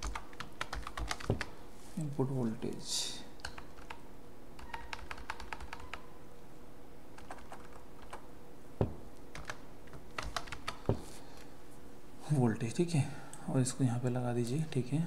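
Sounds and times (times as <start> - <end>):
typing on a computer keyboard: 0.0 - 1.5, 3.4 - 4.0, 4.6 - 6.1, 7.2 - 8.2, 9.3 - 10.9
faint steady hum: 0.0 - 15.0
heavier knocks: 8.8 - 9.1, 10.8 - 11.2.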